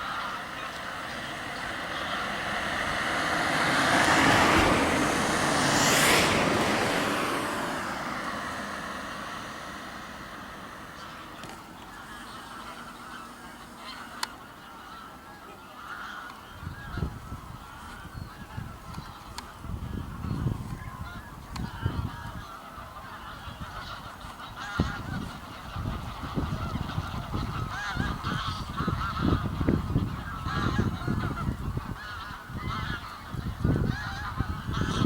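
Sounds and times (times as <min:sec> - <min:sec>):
waterbirds honking: 0:00.0 - 0:35.0
rush of noise: 0:00.2 - 0:11.0.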